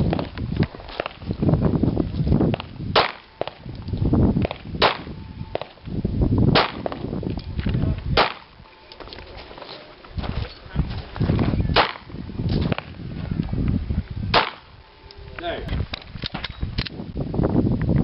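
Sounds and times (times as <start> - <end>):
pistol shots: 2.9 - 3.6, 4.4 - 5.8, 6.5 - 7.0, 8.2 - 8.6, 11.7 - 12.1, 14.3 - 14.7.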